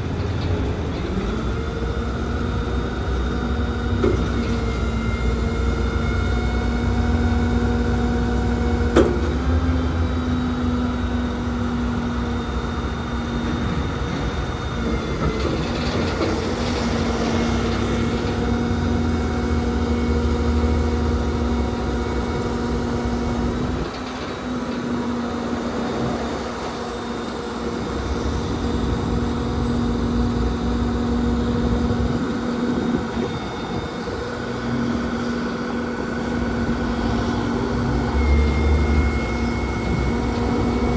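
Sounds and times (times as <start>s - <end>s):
diesel engine rumbling: 0.0s - 40.9s
steady whine: 9.8s - 40.9s.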